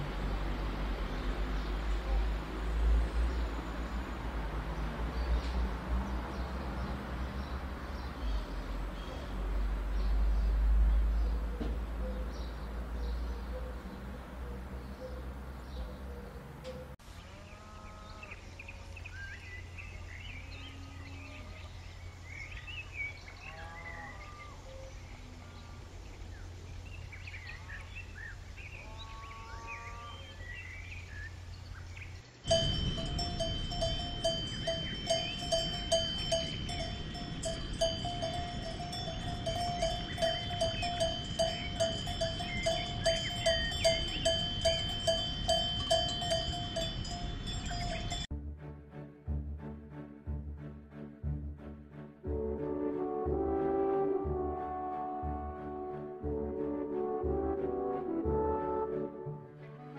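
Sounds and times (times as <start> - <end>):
birds chirping: 0.0 - 48.3
cowbell clanking: 32.5 - 48.3.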